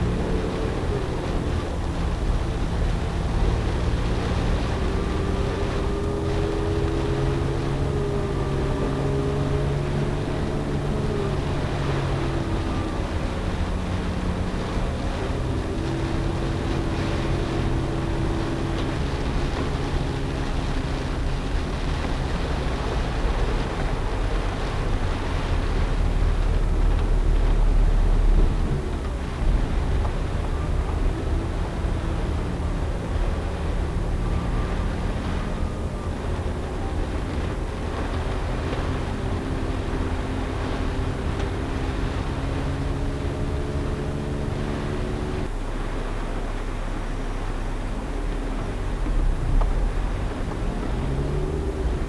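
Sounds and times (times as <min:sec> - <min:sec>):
vehicle engine running: 0:00.0 - 0:52.0
water rushing under tyres: 0:00.0 - 0:52.0.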